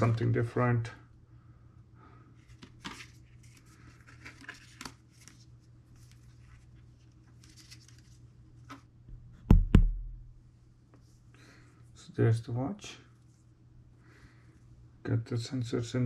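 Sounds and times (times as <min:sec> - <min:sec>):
steady low hum: 0:05.0 - 0:16.0.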